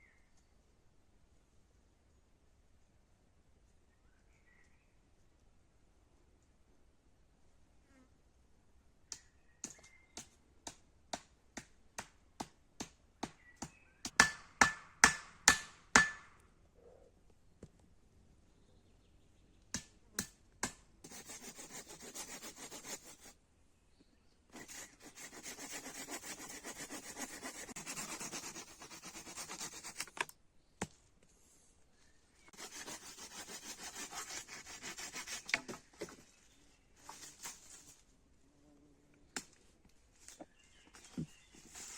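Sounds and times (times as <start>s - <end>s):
rasping on wood: 21.0s - 23.3s, 24.6s - 30.2s, 32.5s - 36.1s.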